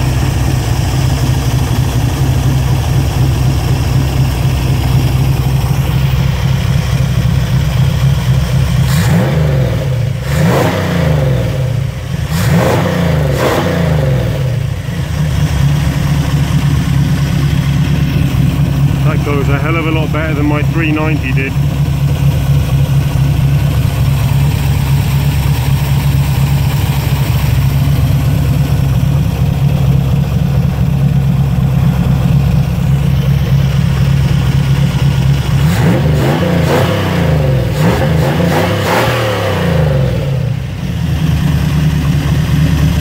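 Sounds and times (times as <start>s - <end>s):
engine idling: 0.0s - 38.6s, 40.0s - 43.0s
engine revving: 5.6s - 21.6s, 31.2s - 43.0s.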